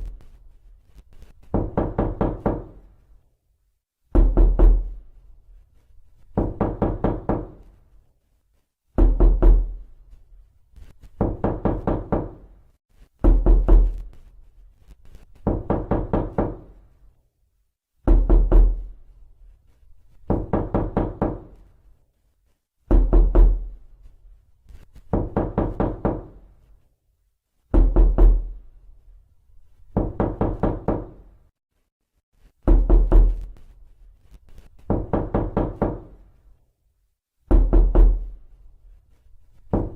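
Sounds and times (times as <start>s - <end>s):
knocking on a door: 1.5s - 2.8s, 4.1s - 5.0s, 6.3s - 7.7s, 9.0s - 9.8s, 11.2s - 12.5s, 13.2s - 14.0s, 15.4s - 16.8s, 18.0s - 18.9s, 20.3s - 21.6s, 22.9s - 23.7s, 25.1s - 26.4s, 27.7s - 28.6s, 29.9s - 31.3s, 32.6s - 33.5s, 34.8s - 36.2s, 37.5s - 38.3s, 39.7s - 39.9s.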